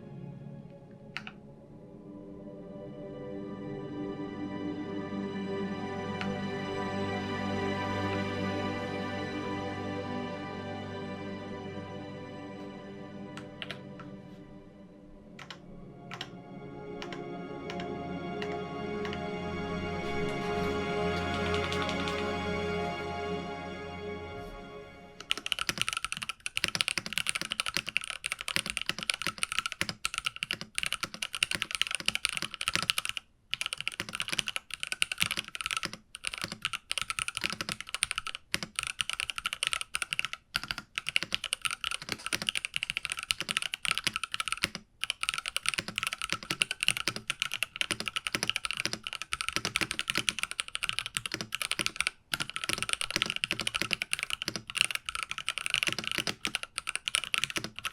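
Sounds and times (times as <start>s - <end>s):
music: 0.0s - 25.7s
mechanical keyboard typing: 15.4s - 16.3s, 20.2s - 22.4s, 25.2s - 57.9s.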